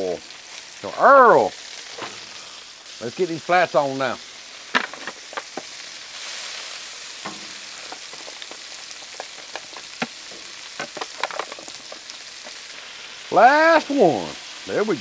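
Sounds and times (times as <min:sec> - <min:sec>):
chicken wings sizzling: 0:00.0 - 0:15.0.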